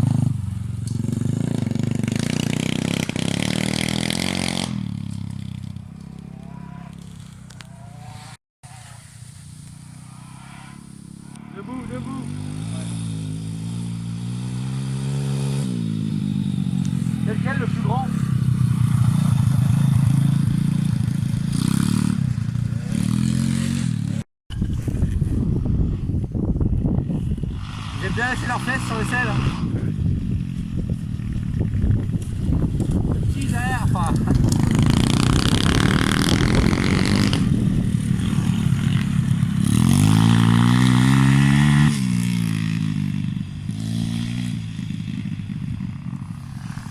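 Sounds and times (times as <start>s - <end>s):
dirt bike engine running: 0.0s - 8.4s, 9.4s - 46.9s.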